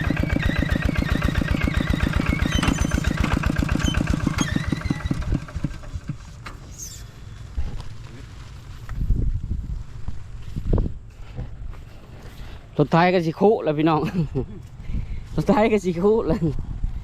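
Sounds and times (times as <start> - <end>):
engine running and shutting off: 0.0 - 12.8.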